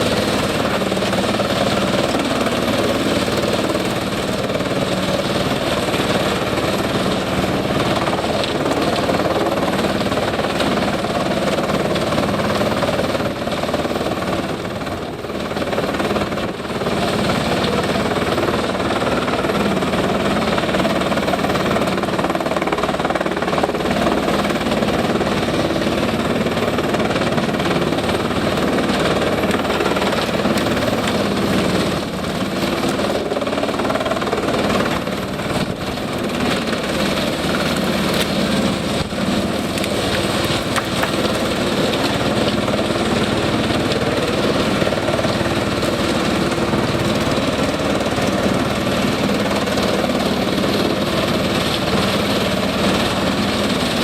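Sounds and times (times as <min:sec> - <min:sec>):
wood chipper running: 0:00.0 - 0:54.0
wood cracking and knocking: 0:37.3 - 0:42.9.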